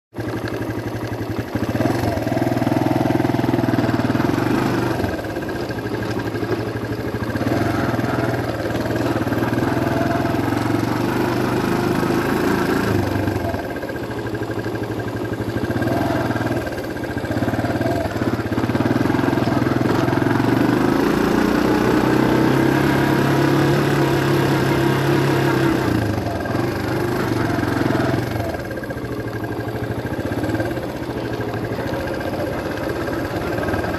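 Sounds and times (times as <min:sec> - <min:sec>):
vehicle engine running: 0:00.1 - 0:33.9.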